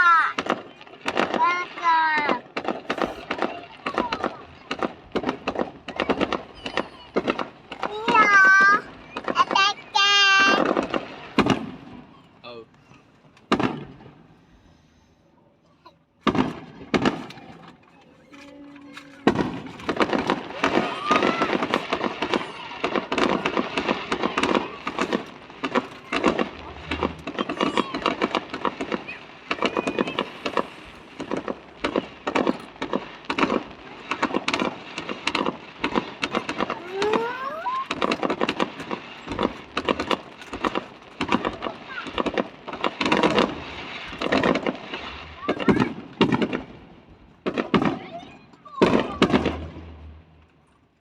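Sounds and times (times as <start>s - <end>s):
onlookers' voices: 0.0s - 11.1s, 15.3s - 46.8s
fireworks crackling and popping: 0.0s - 51.0s
rising firework squeal: 5.5s - 11.0s, 16.7s - 46.1s.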